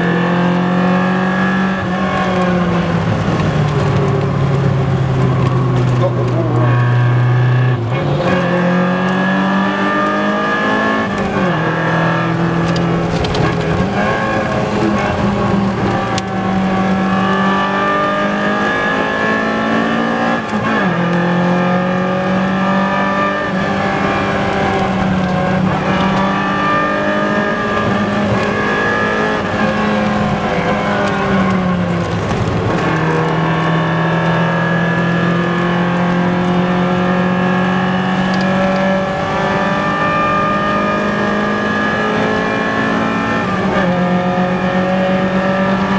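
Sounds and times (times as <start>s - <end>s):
car engine at high revs: 0.0s - 45.9s.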